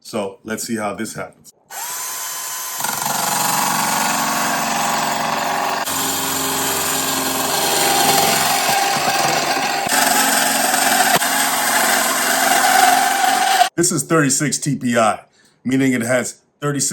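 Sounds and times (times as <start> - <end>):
saw blade grinding sheet metal: 2.7 - 13.7.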